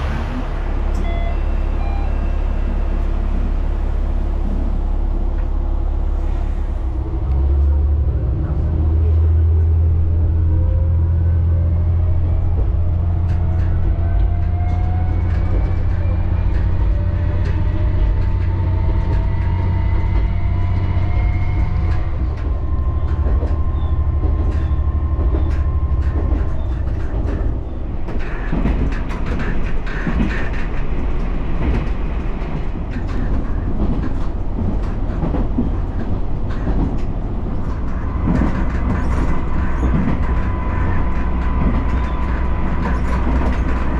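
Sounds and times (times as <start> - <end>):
diesel railcar running: 0.0 - 43.9
wheels clicking over rail joints: 12.4 - 43.9.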